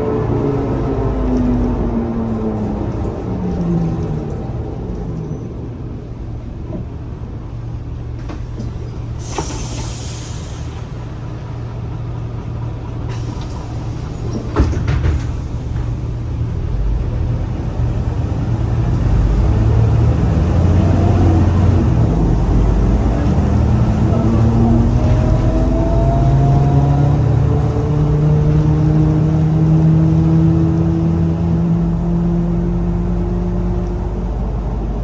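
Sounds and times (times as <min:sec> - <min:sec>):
bus diesel engine running: 0:00.0 - 0:35.0
compressed-air hiss: 0:09.2 - 0:10.8.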